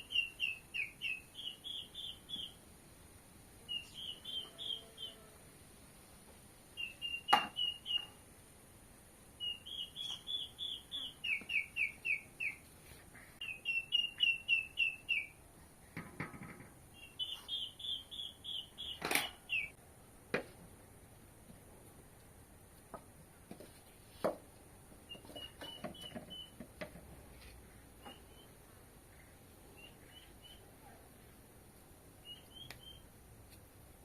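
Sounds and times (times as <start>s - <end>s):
songbird chirping: 0.0s - 5.6s, 6.3s - 15.6s, 16.8s - 19.8s, 24.6s - 33.8s.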